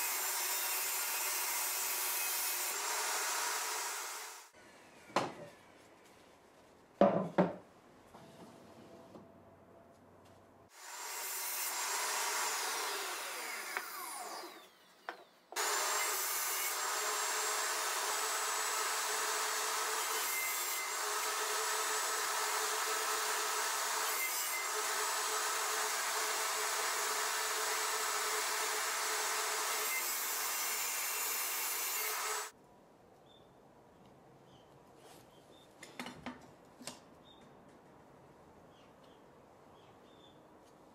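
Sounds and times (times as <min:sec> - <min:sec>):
table saw cutting plywood: 0:00.0 - 0:04.5, 0:10.7 - 0:32.5.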